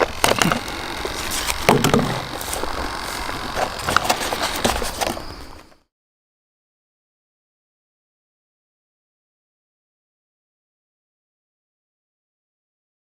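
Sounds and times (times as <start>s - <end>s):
handling clicks and rustles: 0.0s - 5.8s
outdoor background noise: 0.0s - 5.9s.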